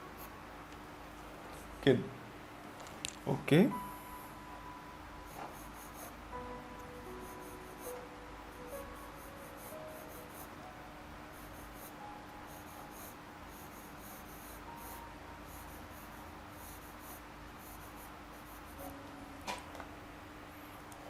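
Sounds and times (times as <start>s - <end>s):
pencil scratching on paper: 5.3s - 6.2s, 8.9s - 10.5s, 11.4s - 18.8s.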